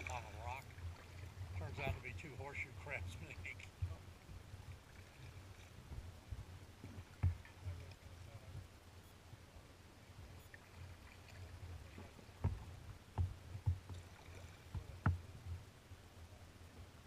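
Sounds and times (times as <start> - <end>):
water rumbling against hull: 0.0 - 8.8, 10.0 - 17.0
paddle knocks and splashes: 5.8 - 7.9, 11.2 - 15.6.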